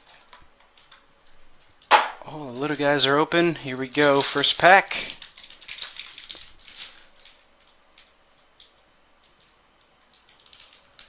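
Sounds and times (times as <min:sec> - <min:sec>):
wrapper crinkling: 0:00.0 - 0:09.5, 0:10.1 - 0:11.0
cards being handled: 0:01.9 - 0:07.0.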